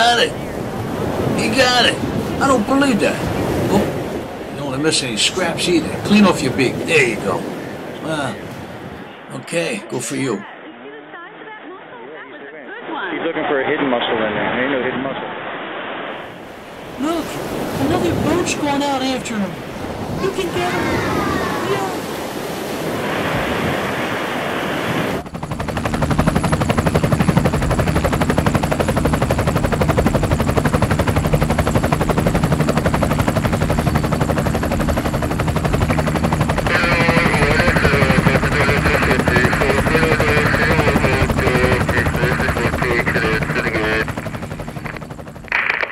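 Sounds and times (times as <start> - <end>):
helicopter rotor chop: 0.0 - 8.9, 16.3 - 22.0, 23.0 - 45.9
surf: 0.0 - 10.6, 12.8 - 45.9
wind: 0.0 - 45.9.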